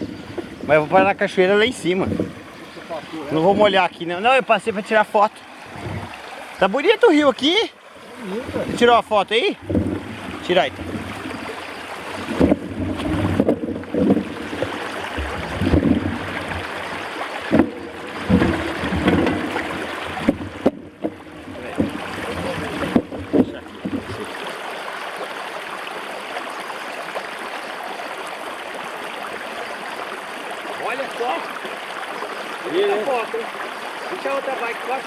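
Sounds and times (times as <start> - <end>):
wind rumble on microphone: 0.0 - 2.6, 5.6 - 6.2, 9.6 - 24.3
river flowing: 0.0 - 35.0.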